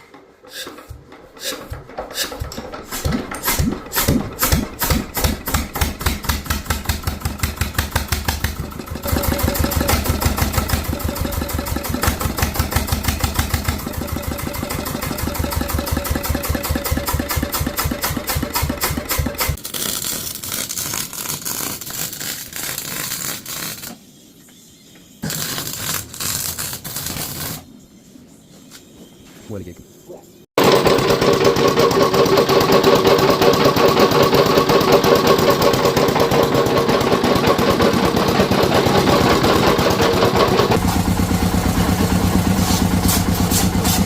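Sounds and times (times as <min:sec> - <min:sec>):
light engine rattle: 0:00.0 - 0:21.6, 0:30.6 - 0:44.0
engine being hand-cranked: 0:00.0 - 0:22.4, 0:30.6 - 0:44.0
stationary engine pulsing: 0:01.4 - 0:19.6, 0:30.6 - 0:44.0.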